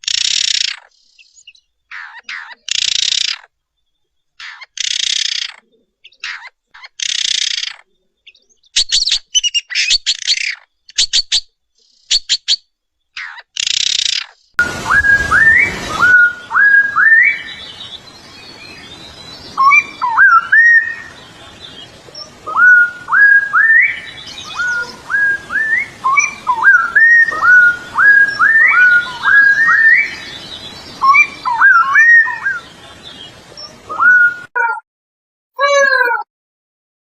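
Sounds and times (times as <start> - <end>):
bird whistling a song: 14.6 - 21.2, 22.2 - 32.6, 33.6 - 34.6.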